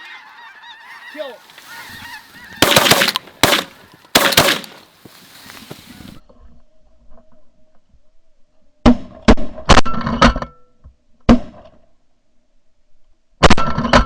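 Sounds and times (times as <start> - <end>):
geese honking: 0.0 - 6.1
shotgun fire: 2.6 - 4.9.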